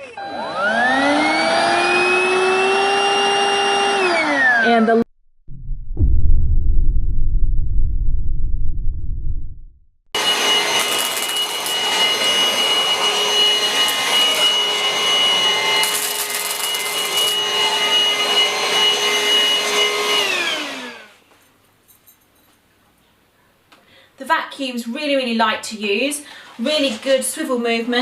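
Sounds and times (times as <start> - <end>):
vacuum cleaner whine: 0.0 - 4.9, 10.2 - 21.3.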